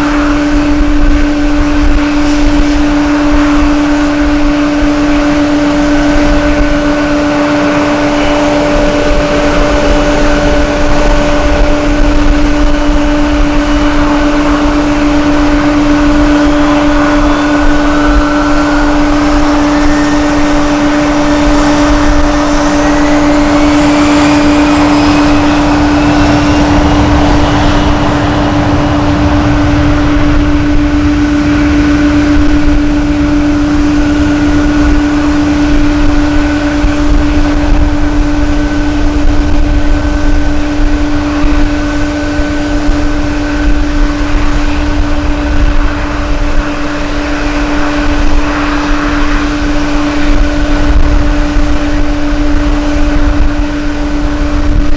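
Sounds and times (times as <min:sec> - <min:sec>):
jet engine whine: 0:00.0 - 0:54.9
jet engines droning: 0:00.0 - 0:54.9
wind rumble on microphone: 0:00.0 - 0:54.9.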